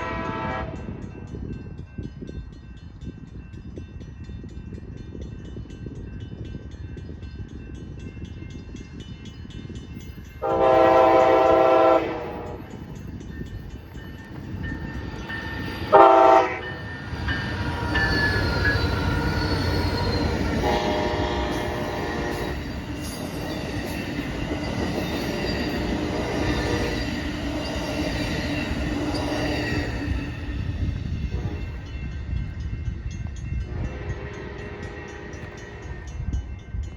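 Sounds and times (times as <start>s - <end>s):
train horn blasts: 0.0s - 1.0s, 10.4s - 12.9s, 15.9s - 16.8s, 19.9s - 22.6s, 31.2s - 31.9s, 33.6s - 36.1s
train rumbling past: 0.0s - 36.9s.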